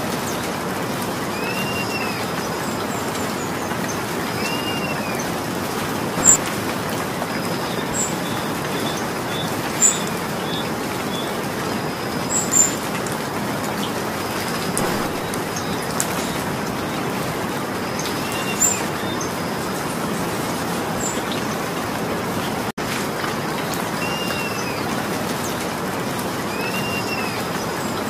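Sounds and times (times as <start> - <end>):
rain hissing: 0.0 - 22.2
bird chirping: 6.2 - 6.6, 14.8 - 16.5.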